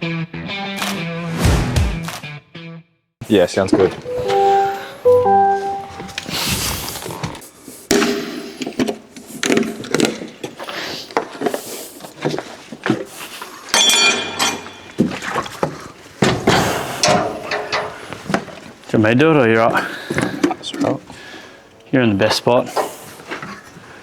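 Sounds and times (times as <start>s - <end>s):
metallic clang: 13.8s - 15.0s, 16.2s - 18.2s.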